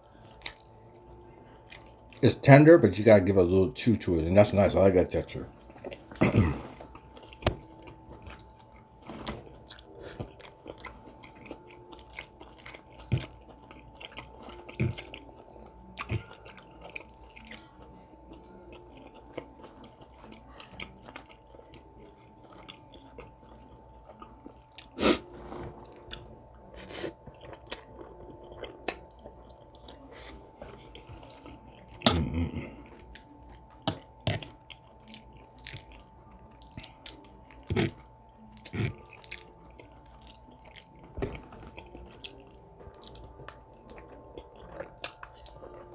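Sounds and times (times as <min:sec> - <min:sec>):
chewing with wet mouth sounds: 0:00.0 - 0:03.2, 0:04.0 - 0:45.9.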